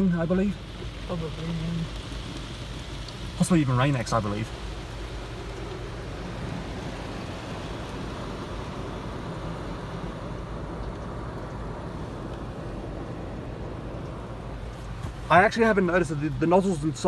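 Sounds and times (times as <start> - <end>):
car wash spraying: 0.0 - 17.0.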